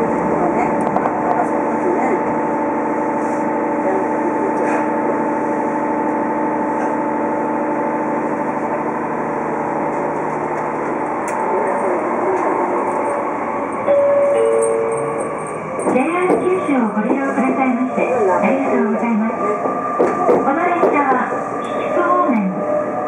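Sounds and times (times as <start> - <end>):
train traction motor whine: 0.0 - 23.0
train wheels rolling on rails: 9.8 - 22.8.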